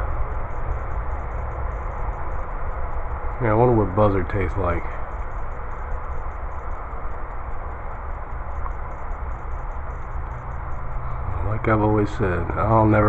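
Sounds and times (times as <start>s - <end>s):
faint high ticking: 0.0s - 13.0s
low rumble: 0.0s - 13.0s.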